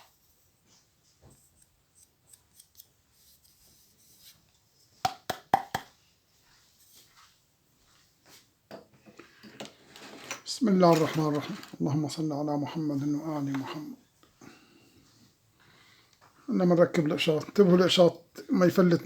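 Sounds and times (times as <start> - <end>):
taps and rubbing of small parts: 0.0 - 5.9.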